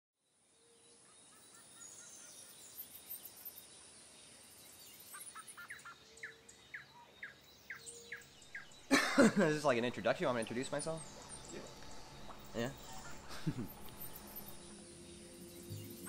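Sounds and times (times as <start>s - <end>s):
birds chirping: 0.2s - 16.0s
steady hiss: 8.8s - 16.0s.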